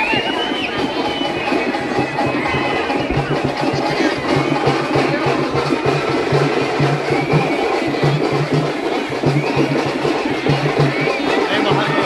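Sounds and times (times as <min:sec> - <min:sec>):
drums beating: 0:00.0 - 0:12.0
murmur of voices: 0:00.0 - 0:12.0.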